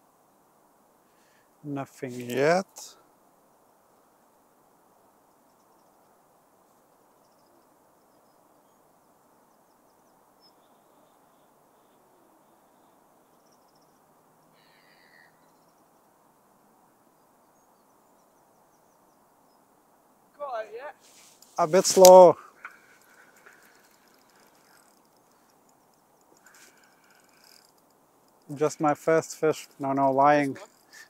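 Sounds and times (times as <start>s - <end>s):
faint background hiss: 0.0s - 31.0s
bird calls: 6.8s - 16.2s, 21.7s - 31.0s.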